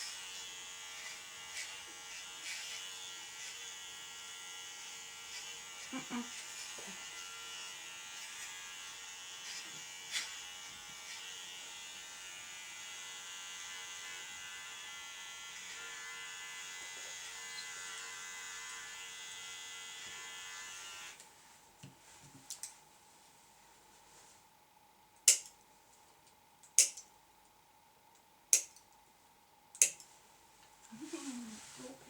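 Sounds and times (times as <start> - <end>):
electric clippers buzzing: 0.0 - 21.2.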